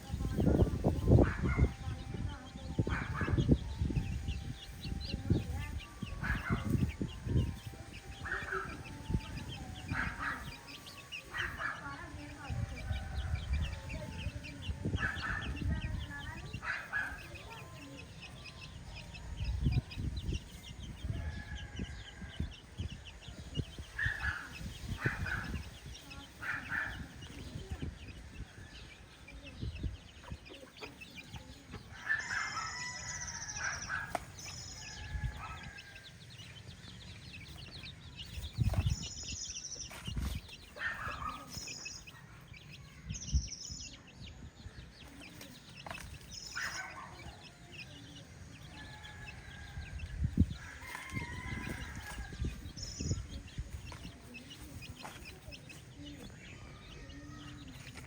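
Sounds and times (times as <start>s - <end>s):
chickens clucking: 0.0s - 42.9s, 44.4s - 58.0s
rooster crowing: 32.1s - 33.8s, 50.5s - 52.4s.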